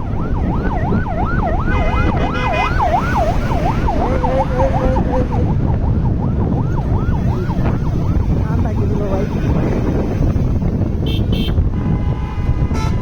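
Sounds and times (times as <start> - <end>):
siren sweeping up and down: 0.0 - 10.2
wind and road noise: 0.0 - 13.0
steady horn tone: 1.4 - 5.4, 7.5 - 13.0.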